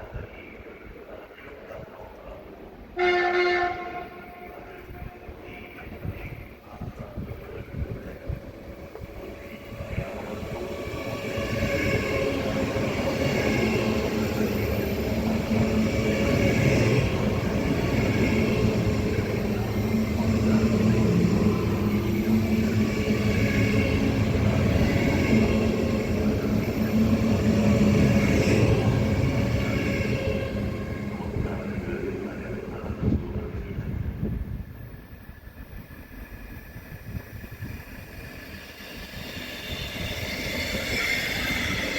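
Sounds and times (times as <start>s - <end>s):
train rumbling past: 0.0s - 41.9s.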